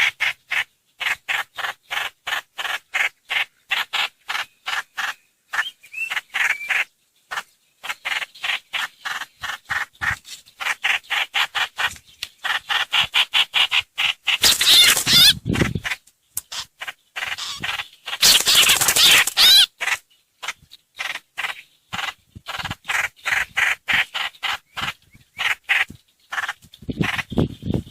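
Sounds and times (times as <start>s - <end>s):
harsh bird chattering: 0.0s - 27.9s.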